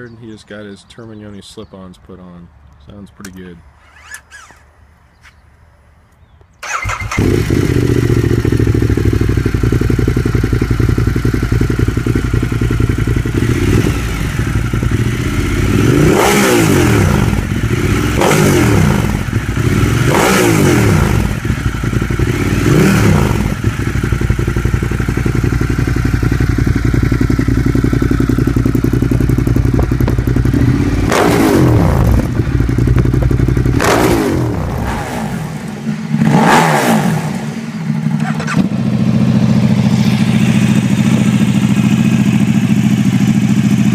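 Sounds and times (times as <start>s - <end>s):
another motorcycle engine: 6.2s - 43.9s
motorcycle engine revving: 6.6s - 43.9s.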